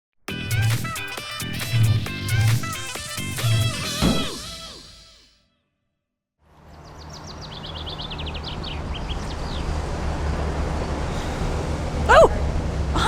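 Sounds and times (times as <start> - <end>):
traffic rumble: 6.5 - 13.0
songbird chirping: 6.7 - 9.8.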